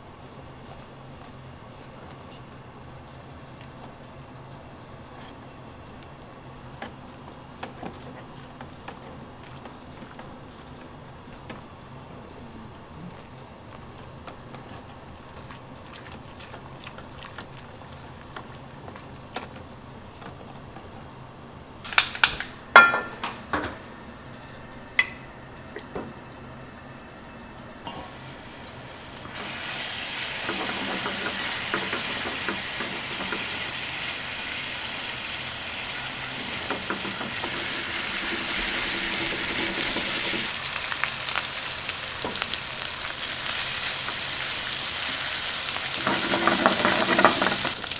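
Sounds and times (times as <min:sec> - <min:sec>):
pan and utensils clanking: 0:21.9 - 0:23.9, 0:25.0 - 0:25.4, 0:27.9 - 0:34.0, 0:35.9 - 0:41.0, 0:45.8 - 0:47.9
food sizzling in hot oil: 0:27.9 - 0:47.9.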